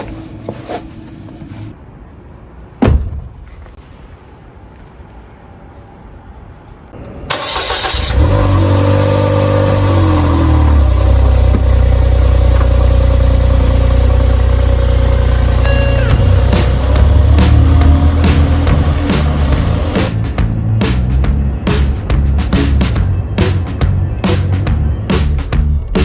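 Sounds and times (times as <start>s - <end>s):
car engine starting and idling: 7.0s - 26.0s.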